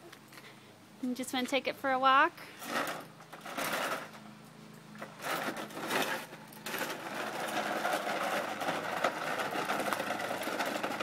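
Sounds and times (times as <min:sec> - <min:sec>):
plastic toy truck rattling: 0:02.6 - 0:04.2, 0:05.1 - 0:11.0.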